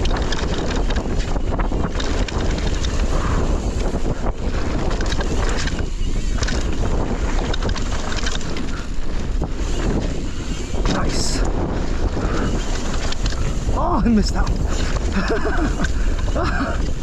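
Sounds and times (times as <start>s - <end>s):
bike rattling and knocking: 0.0s - 17.0s
wind on microphone: 0.0s - 17.0s
tyre noise: 13.1s - 17.0s.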